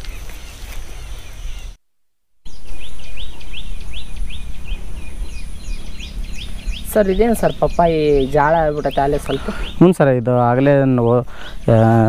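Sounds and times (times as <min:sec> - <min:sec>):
bird chirping: 0:00.0 - 0:01.8, 0:02.4 - 0:12.0
high insect whine: 0:02.5 - 0:09.9
low rumble: 0:02.5 - 0:11.9.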